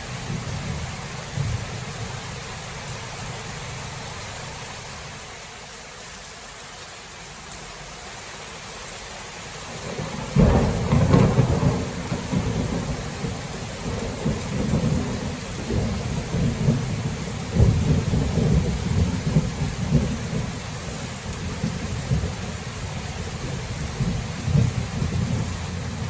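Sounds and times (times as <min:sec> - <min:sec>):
thunderclap and rumble: 0:00.0 - 0:02.3, 0:09.8 - 0:26.0
steady rain: 0:00.0 - 0:26.0.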